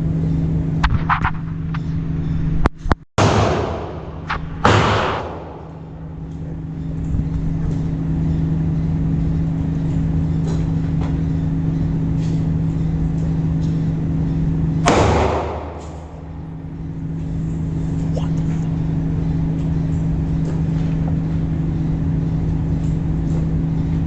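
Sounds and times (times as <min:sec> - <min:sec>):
steady low hum: 0:00.0 - 0:24.0
loud gunshot echoing: 0:03.2 - 0:06.1, 0:14.9 - 0:16.6
faint distant gunshots: 0:14.9 - 0:16.5.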